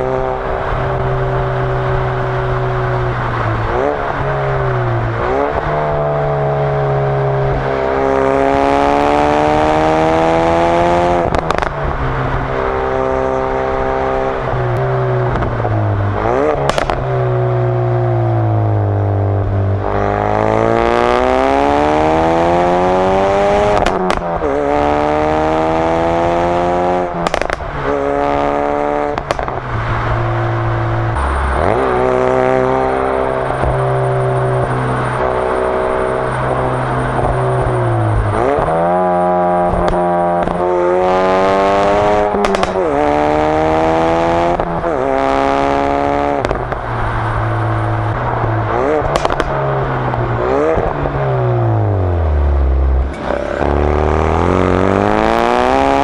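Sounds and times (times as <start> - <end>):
car exhaust under acceleration: 0.0 - 56.0
exhaust pops and cracks: 16.6 - 17.1, 27.2 - 27.7, 29.1 - 29.6, 42.3 - 42.9, 49.0 - 50.2.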